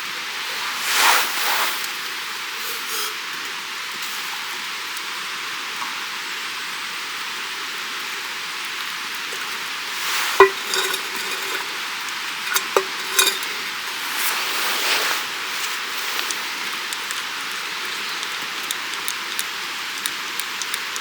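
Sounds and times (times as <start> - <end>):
steady hiss: 0.0 - 20.4
utensil clinking metal pot: 9.2 - 14.4.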